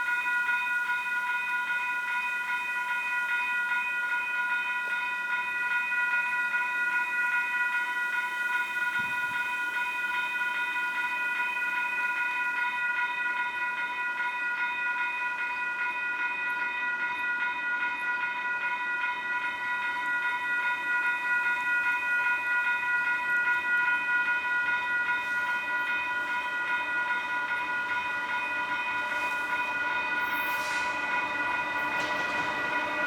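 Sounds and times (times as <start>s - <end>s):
crossing warning bell ringing: 0.0s - 33.0s
freight train rumbling past: 24.4s - 33.0s.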